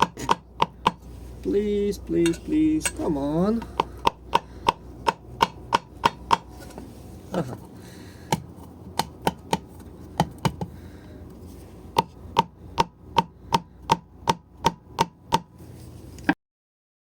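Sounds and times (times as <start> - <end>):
sharp metallic taps on piston: 3.6 - 6.5.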